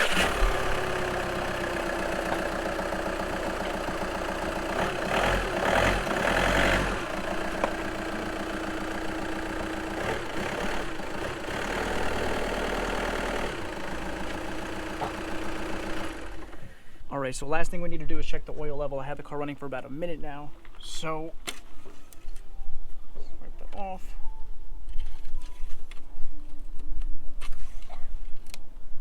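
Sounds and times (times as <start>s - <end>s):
diesel engine idling: 0.0s - 17.1s.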